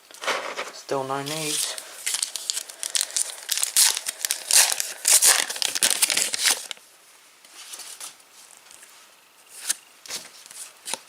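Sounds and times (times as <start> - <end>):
foil wrapper tearing and crinkling: 1.3 - 6.8.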